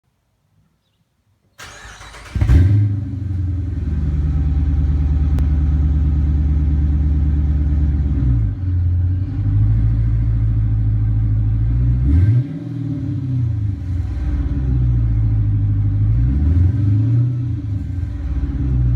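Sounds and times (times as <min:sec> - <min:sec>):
car engine starting and idling: 0:01.6 - 0:18.9.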